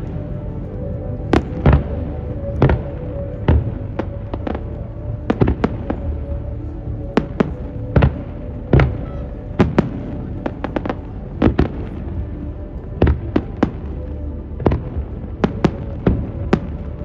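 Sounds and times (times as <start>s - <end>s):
fireworks bursting in sharp bangs: 2.6s - 4.6s, 7.2s - 12.0s.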